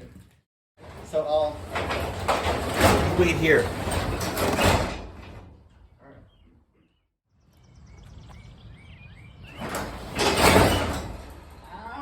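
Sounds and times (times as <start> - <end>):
bird chirps: 5.8 - 9.7.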